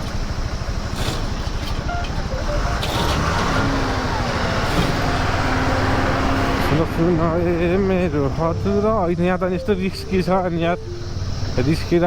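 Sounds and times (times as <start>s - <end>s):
motorcycle engine under load: 0.0s - 9.4s.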